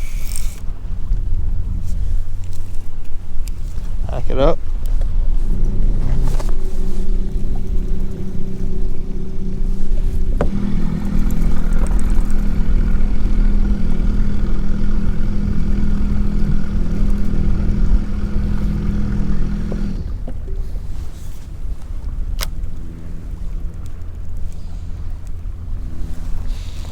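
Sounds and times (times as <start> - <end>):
electric motor humming: 0.0 - 26.9
low rumbling noise: 0.0 - 26.9
click: 22.4 - 22.8.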